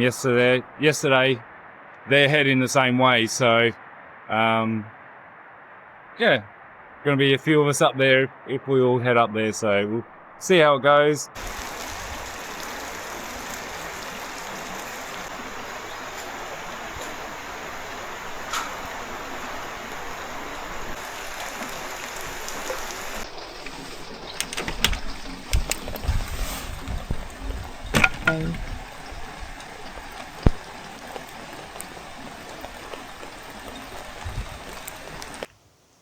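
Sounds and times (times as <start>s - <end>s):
steady rain hissing: 0.0s - 36.0s
sharp clicks: 23.2s - 26.2s
scattered thumps: 26.8s - 30.7s.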